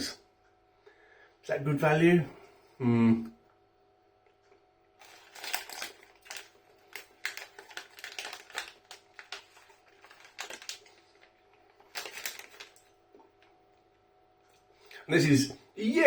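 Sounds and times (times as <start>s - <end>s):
plastic snack packet crinkling: 5.0s - 13.5s.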